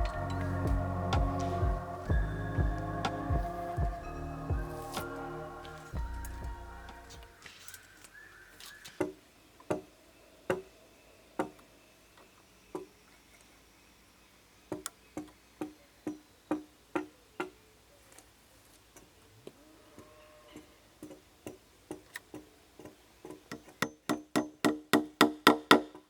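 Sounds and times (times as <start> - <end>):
hammer blows ringing: 0.0 - 7.4.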